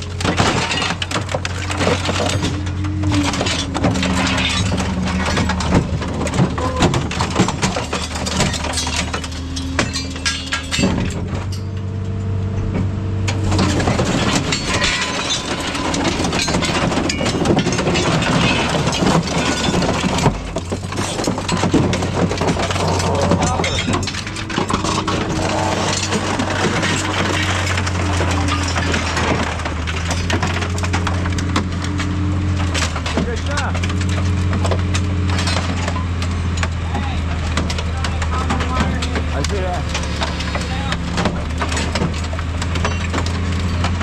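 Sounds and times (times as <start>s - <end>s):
scrap metal clattering: 0.0s - 11.8s, 13.3s - 44.0s
droning machine tone: 0.0s - 18.4s, 22.8s - 32.9s.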